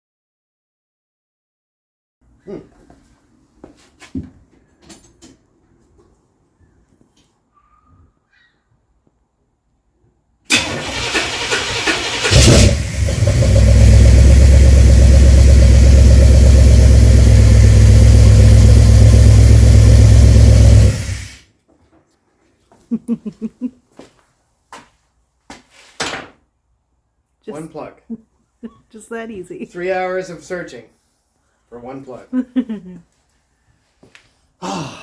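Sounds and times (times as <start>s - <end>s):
starter cranking: 10.5s - 14.1s
car engine running loudly: 10.8s - 21.4s.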